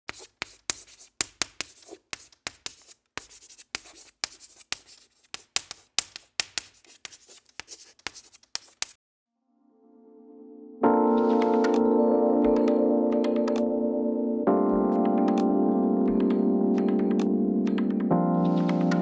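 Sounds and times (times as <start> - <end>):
pen scratching on paper: 0.1 - 9.0.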